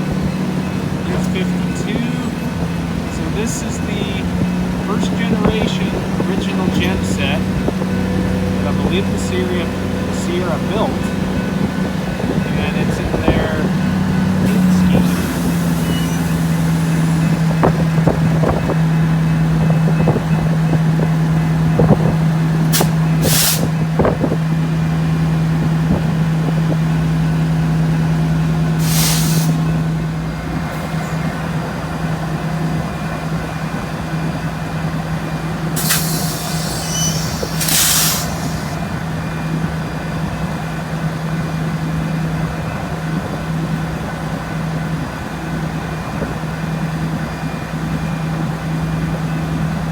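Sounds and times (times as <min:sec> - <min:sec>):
locomotive diesel engine running: 0:00.0 - 0:49.9
air brake hisses: 0:14.5 - 0:17.2, 0:22.7 - 0:23.8, 0:28.8 - 0:29.7, 0:35.8 - 0:38.8.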